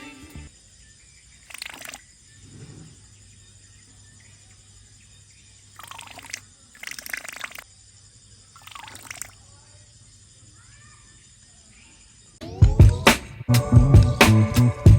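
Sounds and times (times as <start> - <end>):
water splashing: 1.4 - 2.1, 5.7 - 7.6, 8.6 - 9.4.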